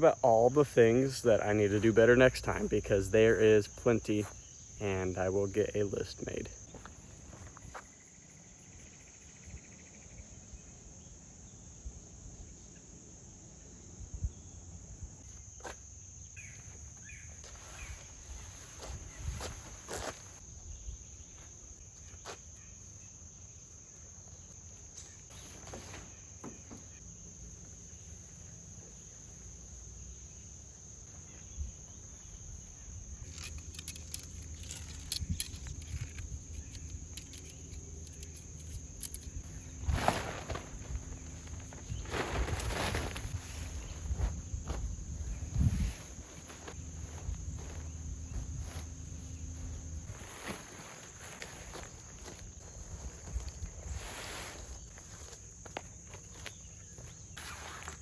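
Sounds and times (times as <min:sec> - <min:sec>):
insects buzzing: 0:00.0 - 0:58.0.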